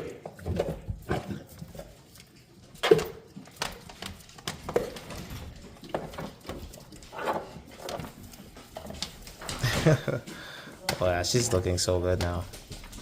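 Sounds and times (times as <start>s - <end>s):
puppy chewing on bone: 0.0s - 9.6s.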